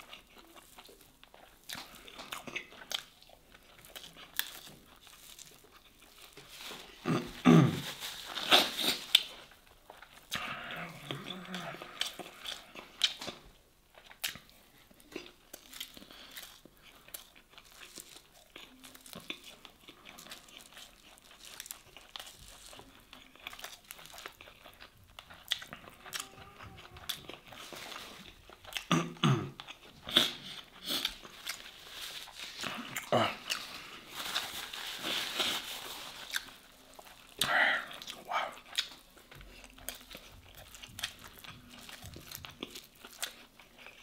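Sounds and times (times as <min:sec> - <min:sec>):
chewing and mouth noises: 0:00.0 - 0:44.0
paper napkin crinkling: 0:07.7 - 0:09.3, 0:31.3 - 0:32.8, 0:33.6 - 0:37.3.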